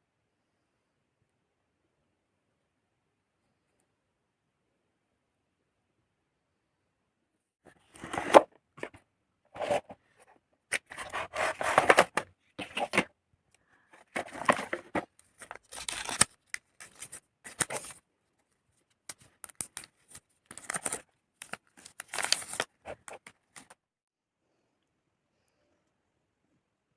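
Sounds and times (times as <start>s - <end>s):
packaging tearing and rustling: 14.1s - 18.0s, 19.1s - 23.7s.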